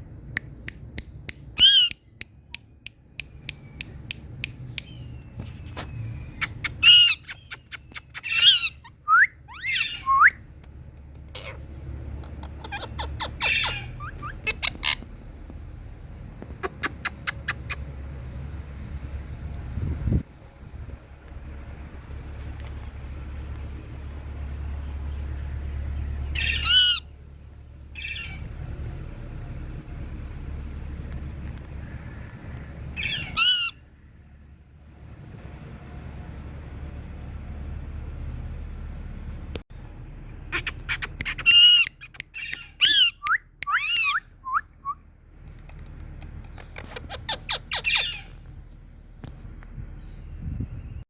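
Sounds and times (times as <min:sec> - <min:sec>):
low steady rumble: 0:00.0 - 0:51.0
parakeet squawking: 0:01.6 - 0:02.0, 0:06.4 - 0:10.1, 0:11.2 - 0:15.1, 0:26.4 - 0:27.1, 0:28.0 - 0:28.4, 0:33.0 - 0:33.8, 0:40.5 - 0:44.3, 0:46.4 - 0:48.4.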